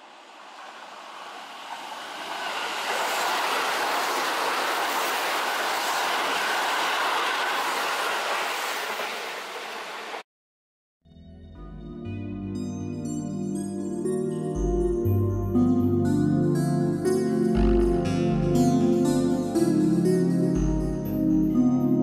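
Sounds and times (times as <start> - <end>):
train wheels rumbling on rails: 0.0 - 10.2.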